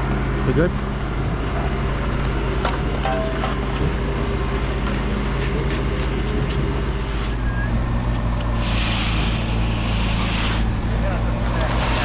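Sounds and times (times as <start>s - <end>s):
engine running: 0.0s - 12.0s
burst of hiss: 8.6s - 10.6s.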